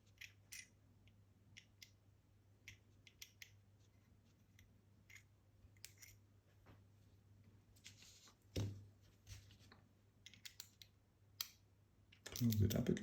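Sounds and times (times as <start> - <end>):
small clicks and taps of metal: 2.6 - 3.6, 10.2 - 13.0.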